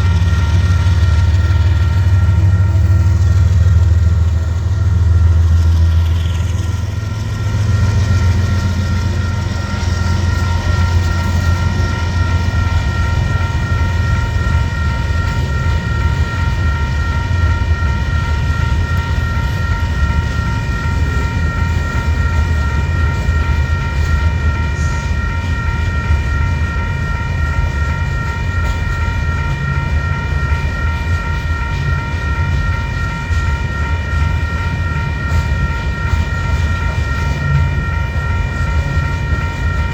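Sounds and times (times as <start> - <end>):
freight train rumbling: 0.0 - 39.9
high-pitched ringing tones: 0.0 - 39.9.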